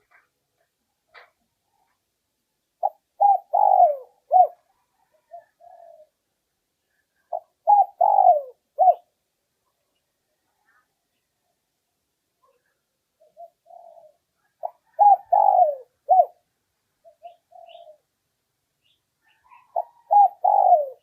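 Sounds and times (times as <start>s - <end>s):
dove cooing: 2.8s - 6.2s, 7.2s - 9.1s, 12.5s - 18.1s, 19.2s - 21.0s.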